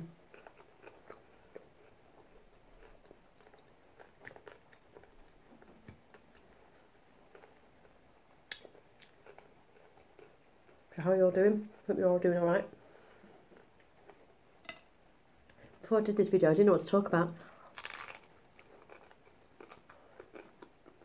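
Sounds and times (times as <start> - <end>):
chewing crunchy taco: 0.1 - 11.0, 12.8 - 14.4, 17.4 - 21.0.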